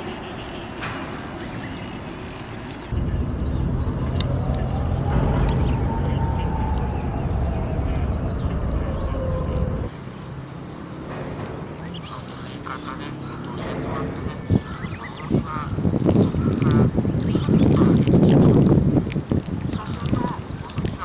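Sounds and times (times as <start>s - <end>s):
low rushing noise: 2.9s - 9.9s.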